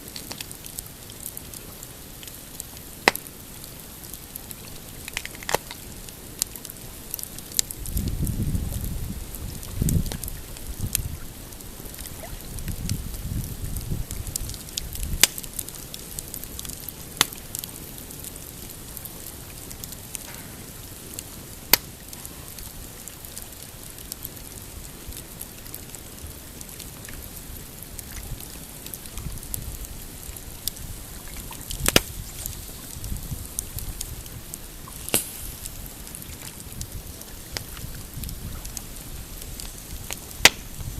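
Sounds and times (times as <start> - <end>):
campfire crackling: 0.0 - 40.9
loud sharp fire pops: 3.0 - 3.4, 14.4 - 15.5, 20.2 - 22.3, 31.8 - 33.7, 34.9 - 38.3, 39.6 - 40.9.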